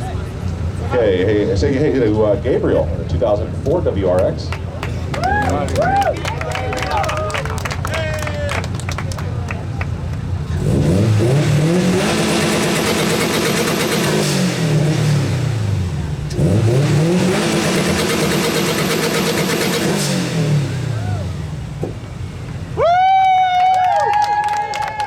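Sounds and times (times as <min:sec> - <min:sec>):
car engine revving: 0:00.0 - 0:23.5.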